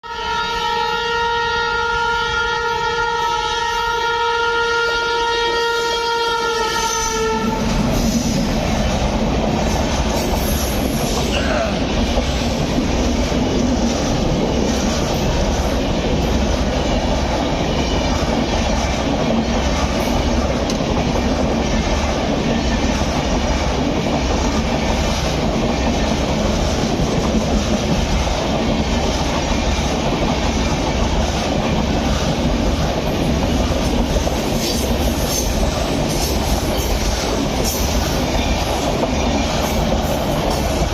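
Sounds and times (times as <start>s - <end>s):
locomotive horn blast: 0.0s - 7.8s
train rumbling and wheel clatter: 0.1s - 40.9s.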